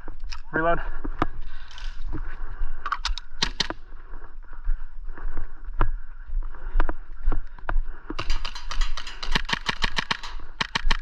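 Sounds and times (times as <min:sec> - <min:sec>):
airsoft guns popping: 0:02.8 - 0:03.8, 0:08.2 - 0:11.0.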